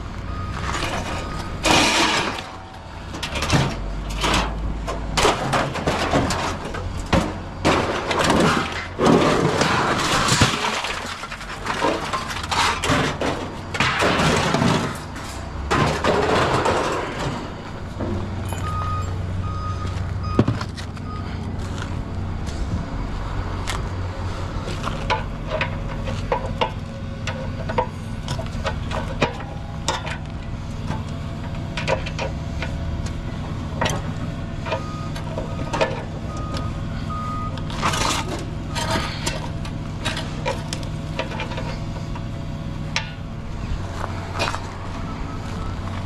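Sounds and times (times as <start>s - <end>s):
scrap metal clanging: 0.6s - 19.2s, 37.7s - 42.1s
vehicle engine idling: 17.4s - 46.0s
short beeps: 18.6s - 21.4s.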